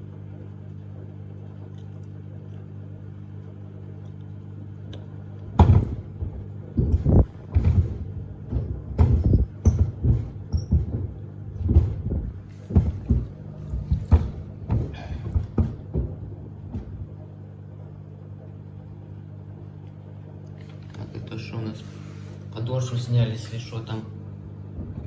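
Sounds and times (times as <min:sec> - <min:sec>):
washer hum: 0:00.0 - 0:25.0
shoes thumping in washer drum: 0:05.4 - 0:17.9, 0:20.7 - 0:25.0.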